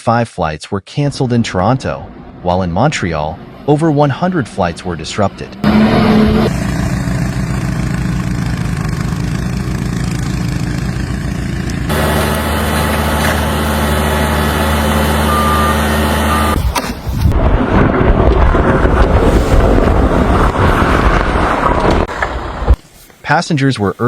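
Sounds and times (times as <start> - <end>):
large vehicle engine running: 1.5 - 16.7
short high beeps: 15.3 - 16.6.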